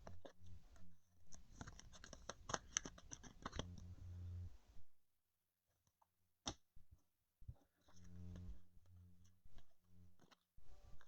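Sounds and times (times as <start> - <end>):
card wrappers crinkling and clicking: 1.4 - 3.7.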